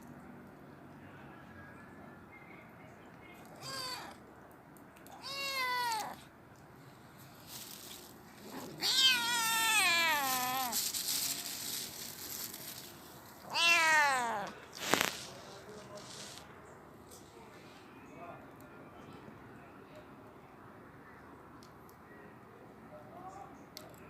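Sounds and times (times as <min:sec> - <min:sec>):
kitten meowing: 0:03.6 - 0:04.2, 0:05.1 - 0:06.3, 0:08.8 - 0:10.8, 0:13.4 - 0:15.1.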